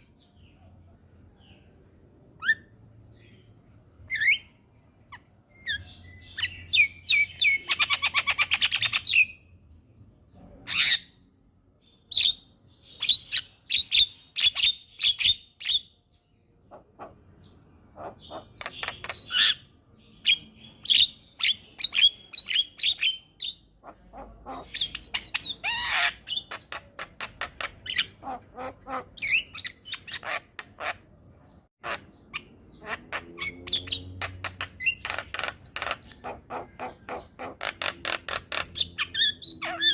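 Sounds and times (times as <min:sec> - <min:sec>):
bird harsh chattering calls: 0:16.7 - 0:19.7, 0:20.3 - 0:31.1, 0:31.8 - 0:39.9.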